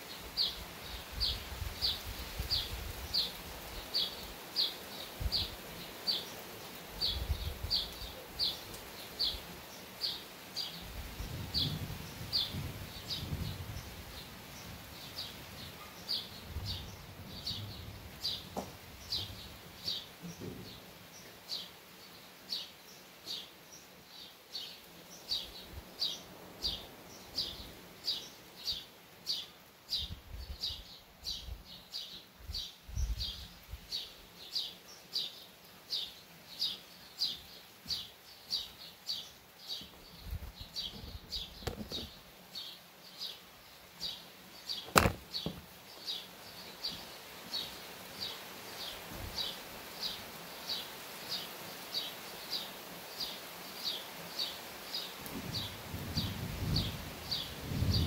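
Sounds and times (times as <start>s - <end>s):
bird chirping: 14.6s - 55.1s
distant thunder rumbling: 55.4s - 58.0s.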